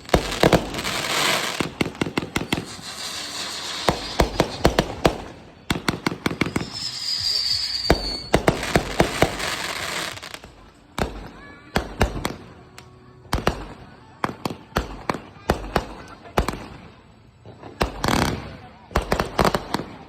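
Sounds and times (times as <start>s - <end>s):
firework whistle: 0.0s - 10.3s
fireworks banging and crackling: 0.0s - 20.0s.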